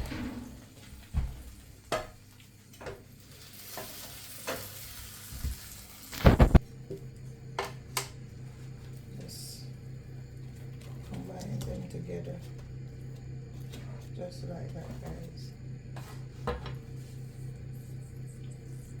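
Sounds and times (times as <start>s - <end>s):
sizzling hiss: 3.2s - 6.6s.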